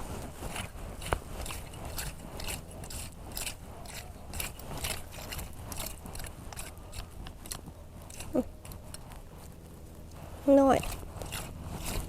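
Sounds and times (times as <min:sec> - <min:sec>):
scraper dragged through sand and shells: 0:10.2 - 0:12.0.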